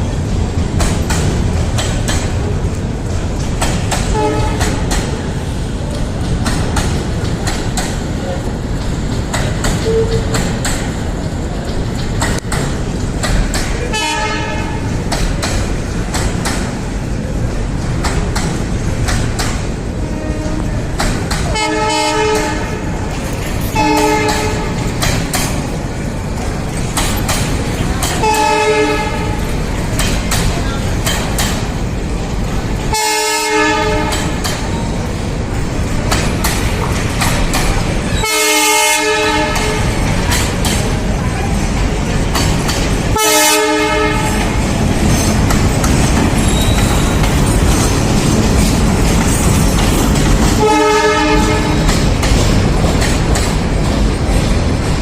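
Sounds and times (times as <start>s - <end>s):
train rumbling and clattering: 0.0s - 55.0s
train horn blasts: 4.1s - 4.8s, 13.9s - 14.9s, 20.0s - 20.8s, 21.5s - 23.1s, 23.7s - 24.9s, 28.2s - 29.4s, 32.9s - 34.4s, 38.2s - 40.0s, 43.1s - 44.6s, 50.6s - 52.0s.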